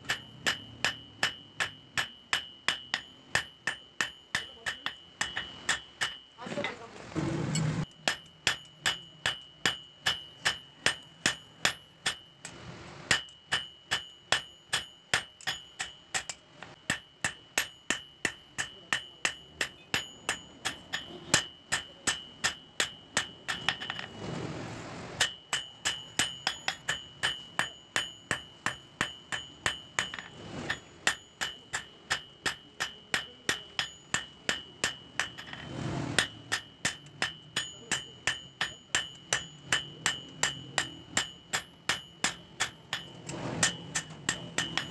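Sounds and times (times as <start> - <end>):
hammer striking steel on anvil: 0.0 - 6.8, 7.5 - 24.4, 25.2 - 44.9.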